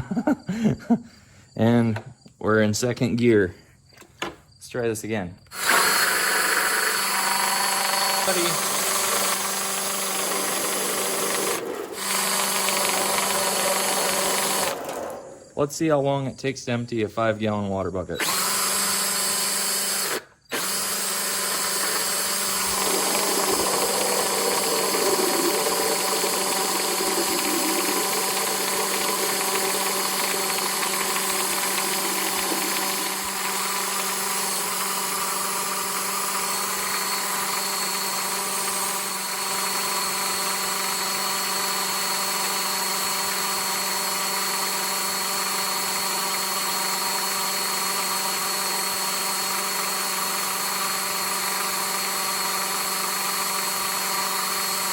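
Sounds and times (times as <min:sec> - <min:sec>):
cordless drill running: 0:05.4 - 0:15.6, 0:18.2 - 0:54.9
rough pumping noise: 0:05.6 - 0:15.2, 0:21.4 - 0:35.4.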